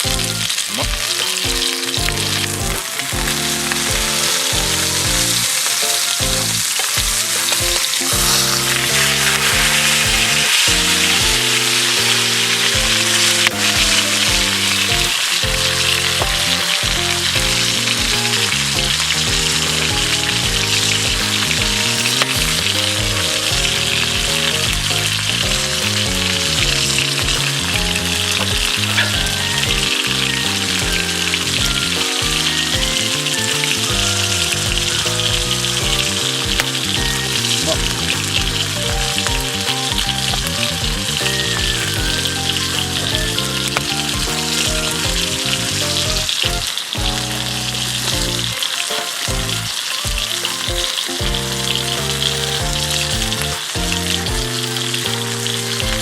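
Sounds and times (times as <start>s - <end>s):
background music: 0.0s - 56.0s
food sizzling in a pan: 0.3s - 18.6s.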